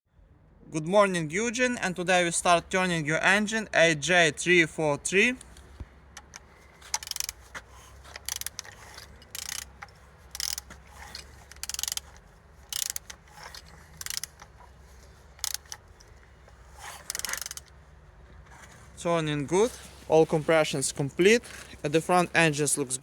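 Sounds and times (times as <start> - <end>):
engine mechanism noises: 4.7 - 23.0
wrench ratcheting clicks: 5.4 - 7.4, 8.1 - 14.5, 15.4 - 16.1, 16.8 - 17.7.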